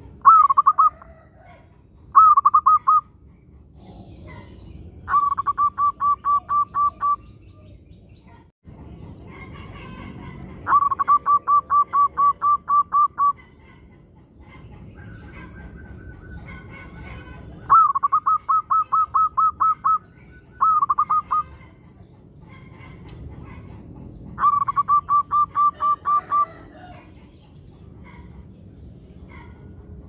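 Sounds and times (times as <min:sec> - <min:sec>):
dove cooing: 0:00.0 - 0:03.1, 0:05.1 - 0:07.2, 0:09.6 - 0:13.6, 0:15.0 - 0:21.7, 0:22.5 - 0:27.2
other birds calling: 0:00.0 - 0:30.0.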